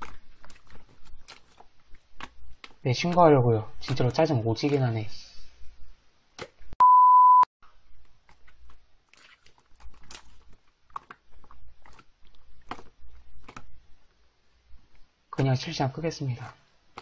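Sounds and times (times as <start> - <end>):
censor bleep: 6.8 - 7.5
slime clicking and crackling: 8.2 - 13.8.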